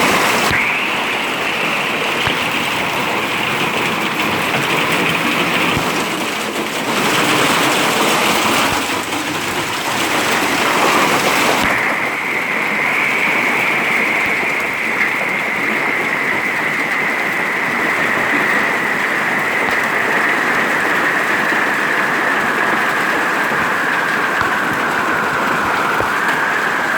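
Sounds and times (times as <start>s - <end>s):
tone sinking in pitch: 0.0s - 3.2s
hail pelting down: 0.0s - 26.9s.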